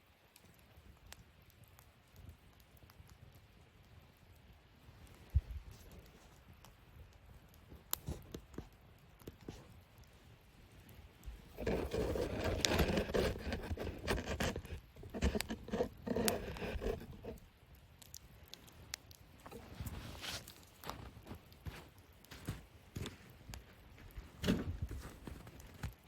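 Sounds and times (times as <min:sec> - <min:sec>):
wood fire crackling and popping: 0:00.0 - 0:26.0
rustling and scraping: 0:11.4 - 0:17.4, 0:19.4 - 0:26.0.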